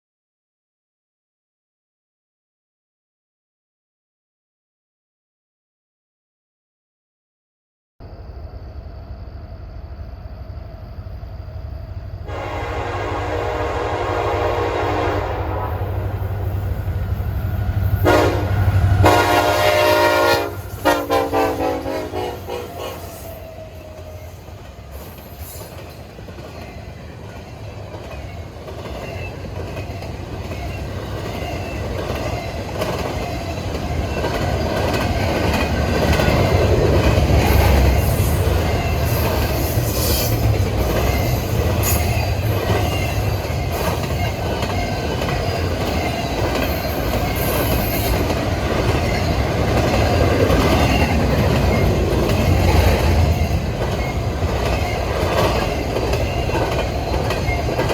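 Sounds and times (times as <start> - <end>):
train rumbling on rails: 8.0 - 57.9
train wheels squealing: 16.3 - 19.1, 22.4 - 57.9
wheels clicking over rail joints: 23.6 - 57.9.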